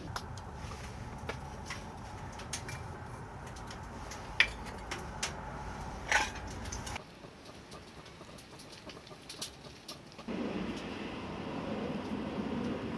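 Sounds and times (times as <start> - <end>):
steady low rumble: 0.0 - 9.2, 10.2 - 12.9.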